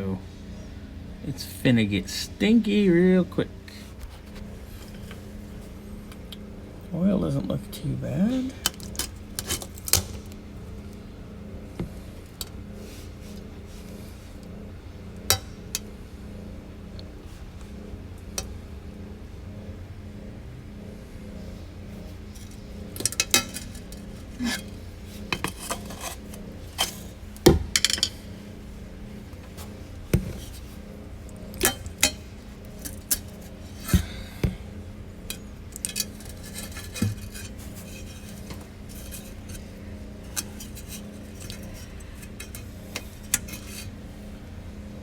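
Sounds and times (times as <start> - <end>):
steady low hum: 0.0 - 45.0
metal tools clinking and knocking: 22.4 - 27.1, 27.7 - 28.2, 35.3 - 43.9.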